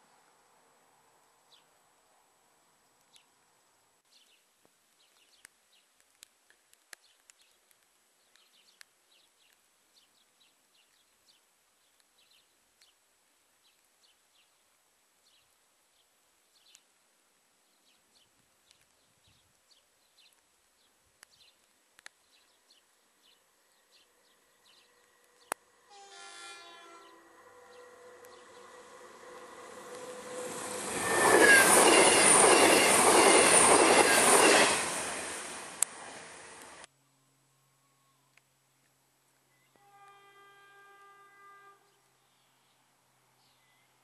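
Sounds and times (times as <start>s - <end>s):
small birds chirping faintly: 0.0s - 25.7s.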